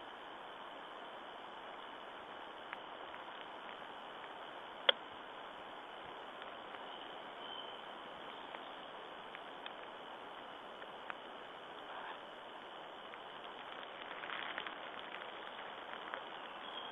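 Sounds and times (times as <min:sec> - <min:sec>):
steady forest hiss: 0:00.0 - 0:16.9
faint ticks: 0:01.7 - 0:05.1, 0:06.0 - 0:16.9.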